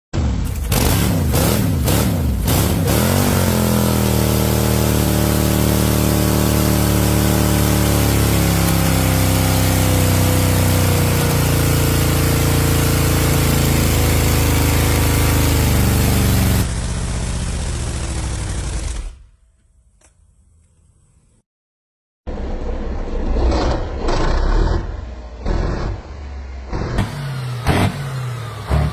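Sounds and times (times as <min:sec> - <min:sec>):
old tractor engine running: 0:03.5 - 0:19.2.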